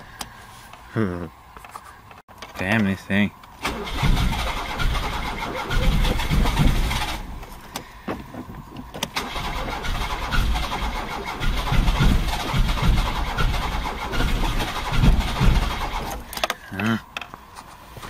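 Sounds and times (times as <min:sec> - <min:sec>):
car engine cranking: 0:03.5 - 0:17.3.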